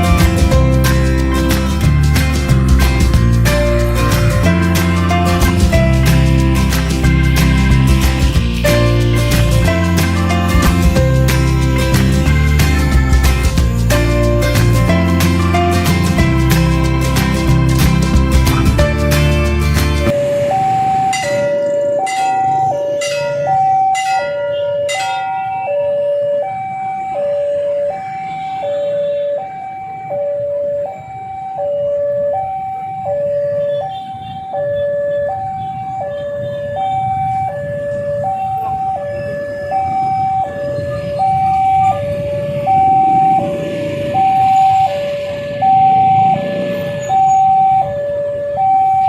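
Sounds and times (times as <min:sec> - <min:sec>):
road traffic rumble: 0:00.0 - 0:49.0
level crossing alarm ding-dong: 0:20.1 - 0:49.0.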